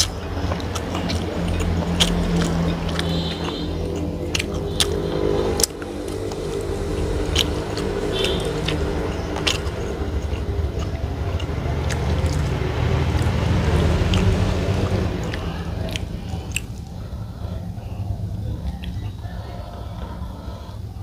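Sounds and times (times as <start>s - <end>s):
person chewing: 0.0s - 20.8s
steady low rumble: 0.0s - 21.0s.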